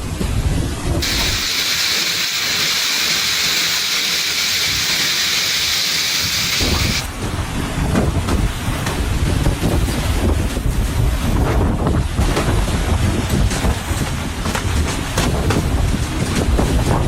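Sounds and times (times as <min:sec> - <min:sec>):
heavy rain pouring: 0:01.0 - 0:17.0
wind buffeting microphone: 0:06.2 - 0:17.0.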